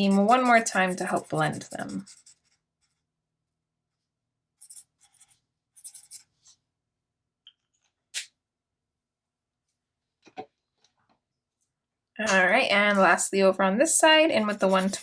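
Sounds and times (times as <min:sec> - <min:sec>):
marker scratching on paper: 0:00.0 - 0:03.1, 0:04.6 - 0:06.6, 0:14.4 - 0:15.0.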